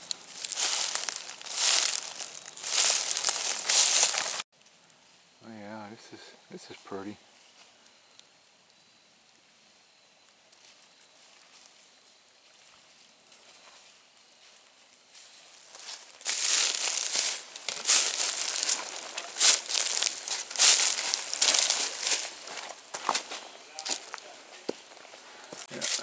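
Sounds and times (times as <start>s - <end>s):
dry leaves crunching: 0.0s - 4.5s, 12.6s - 26.0s.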